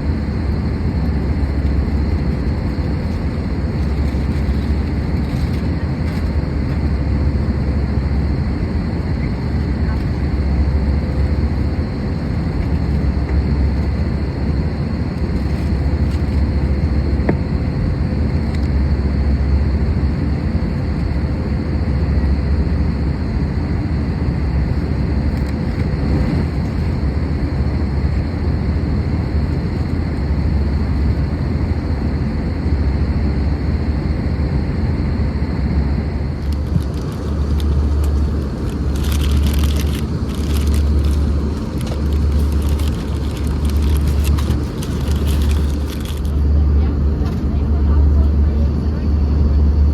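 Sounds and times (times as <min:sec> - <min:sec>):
airplane cabin engine rumble: 0:00.0 - 0:49.9
light crackling rustle: 0:36.4 - 0:46.4.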